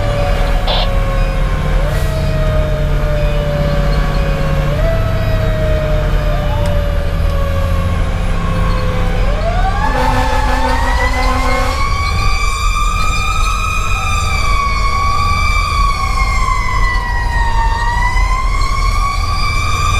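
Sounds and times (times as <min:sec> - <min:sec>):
diesel engine rumbling: 0:00.0 - 0:16.7
fire engine siren: 0:00.0 - 0:19.9.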